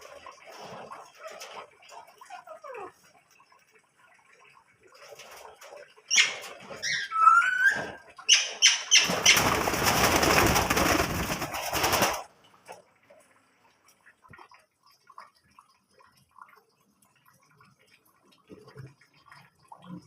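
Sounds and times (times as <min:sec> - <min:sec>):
cage birds chirping: 0:06.1 - 0:12.2
wing flapping: 0:08.9 - 0:12.3.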